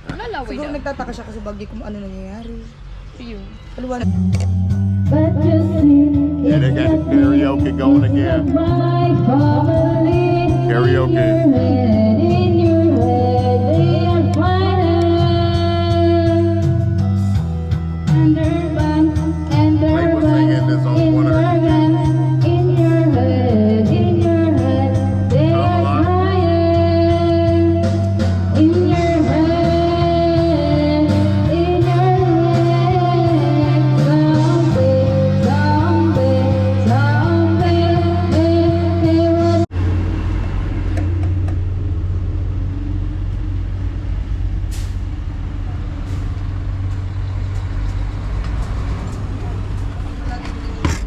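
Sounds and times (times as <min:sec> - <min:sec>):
song with singing voice: 0:04.1 - 0:17.0, 0:18.0 - 0:39.7
steady low rumble: 0:39.7 - 0:48.3.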